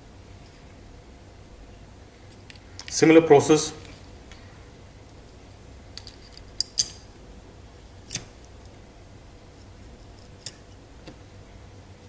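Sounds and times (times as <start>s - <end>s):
small parts clicking and tapping: 5.9s - 7.0s.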